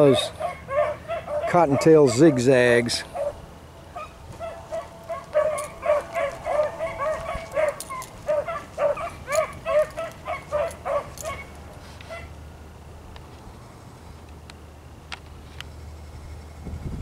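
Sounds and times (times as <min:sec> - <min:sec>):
hounds baying: 0:00.0 - 0:12.4.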